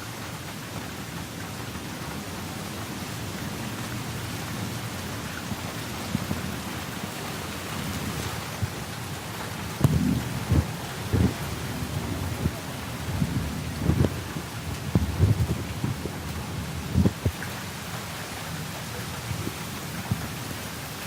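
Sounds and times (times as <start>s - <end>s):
heavy rain: 0.0s - 21.0s
thunder rumbling: 4.0s - 17.5s
thunder crack: 9.7s - 17.3s.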